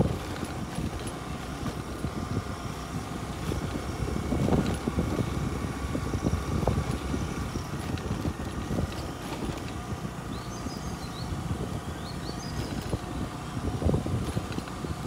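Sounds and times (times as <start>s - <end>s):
knocks and rattles: 0.0s - 2.2s, 6.6s - 10.0s, 14.2s - 14.8s
vehicle rumbling off-road: 0.0s - 15.0s.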